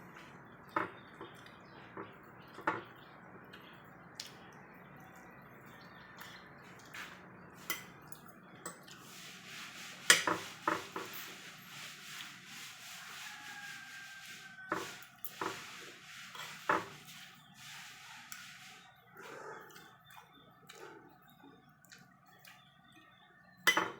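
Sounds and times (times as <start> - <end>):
cutlery clinking on a plate: 7.6 - 8.9, 10.1 - 11.3, 14.6 - 15.6, 23.7 - 23.9.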